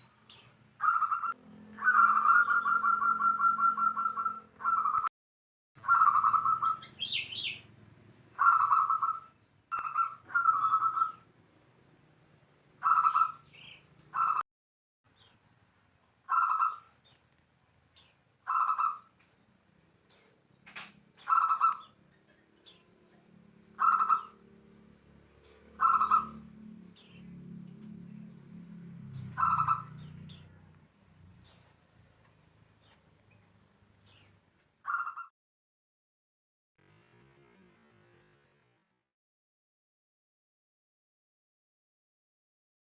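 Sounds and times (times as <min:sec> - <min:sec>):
bird calling: 0:00.0 - 0:05.1, 0:05.8 - 0:11.4, 0:12.8 - 0:14.4, 0:16.3 - 0:17.2, 0:18.0 - 0:19.2, 0:20.1 - 0:24.5, 0:25.4 - 0:27.4, 0:29.2 - 0:30.7, 0:34.1 - 0:35.3.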